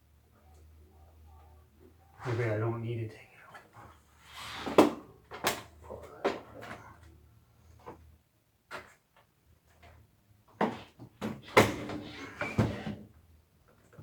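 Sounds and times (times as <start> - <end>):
short scrape: 4.2 - 5.0.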